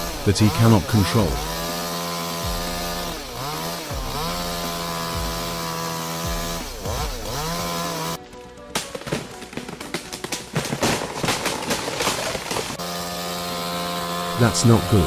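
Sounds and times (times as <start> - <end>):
chainsaw running at high revs: 0.0 - 8.2, 9.6 - 15.0
sharp crack: 8.6 - 12.8.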